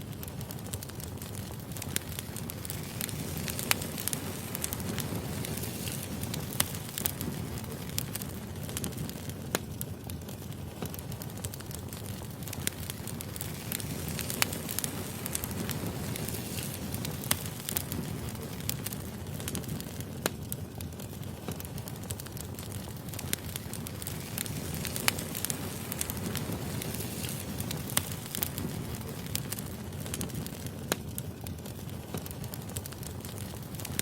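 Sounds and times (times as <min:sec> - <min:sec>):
burning firewood crackling: 0:00.0 - 0:34.0.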